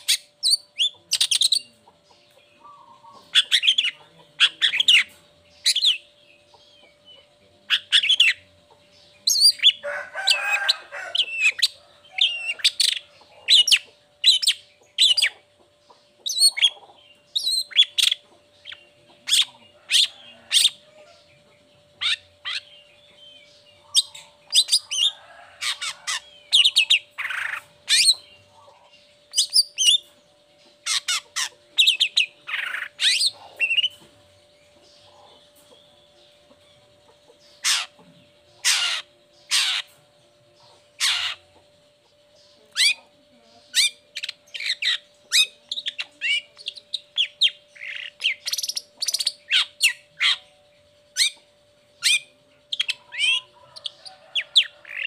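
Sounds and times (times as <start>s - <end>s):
faint steady hum: 0.0s - 55.0s
bird sharp high calls: 37.5s - 38.0s, 38.6s - 40.0s, 41.0s - 41.5s.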